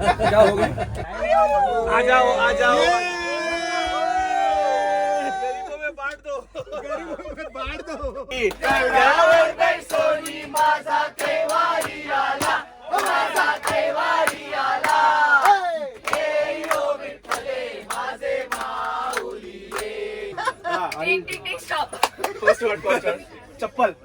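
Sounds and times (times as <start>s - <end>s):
long falling cry: 1.3s - 5.8s
group chanting and shouting: 8.3s - 21.4s.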